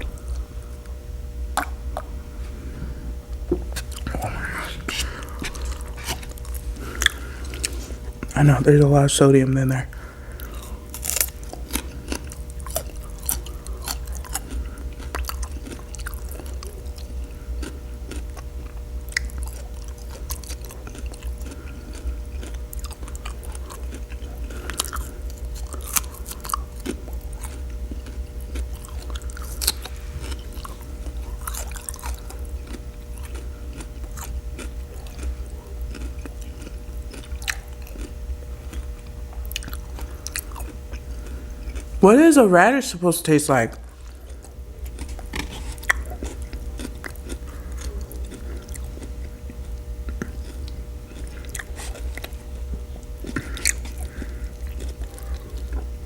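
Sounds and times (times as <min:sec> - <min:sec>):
chewing and mouth smacking: 0:00.0 - 0:09.0, 0:09.9 - 0:42.6, 0:43.5 - 0:56.0
low hum: 0:00.0 - 0:15.4.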